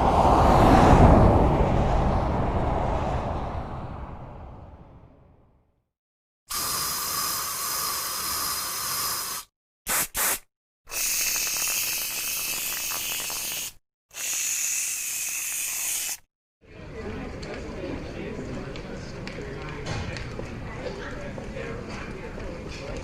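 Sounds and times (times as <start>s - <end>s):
low rumble: 0.0s - 5.7s
hissing bursts with faint whistle: 6.5s - 16.2s.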